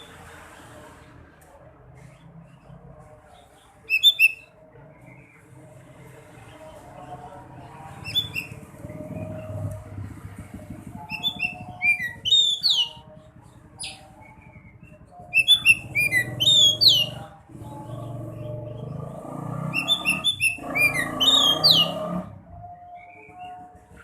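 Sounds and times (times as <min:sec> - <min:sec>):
bird singing high chirps: 0:03.8 - 0:05.2, 0:08.0 - 0:09.6, 0:10.9 - 0:19.0, 0:19.7 - 0:22.1.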